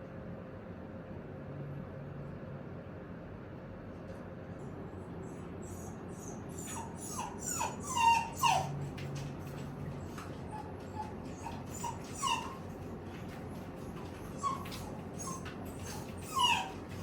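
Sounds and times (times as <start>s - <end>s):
dog whimpering: 5.2s - 17.0s.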